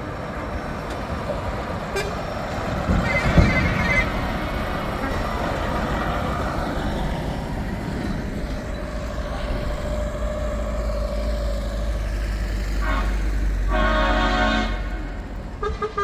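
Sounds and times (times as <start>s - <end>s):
truck engines rumbling past: 0.0s - 16.0s
truck air horn: 1.9s - 2.2s, 9.0s - 16.0s.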